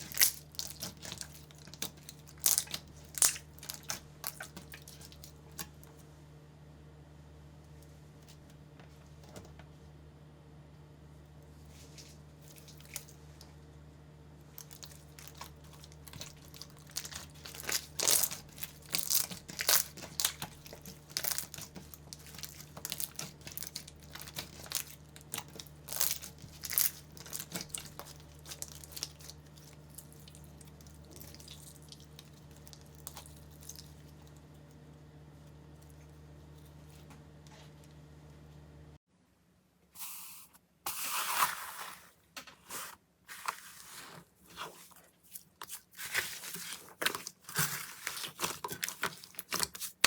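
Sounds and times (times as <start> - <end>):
slime squeezed crackling and popping: 0.0 - 5.6, 14.6 - 34.1.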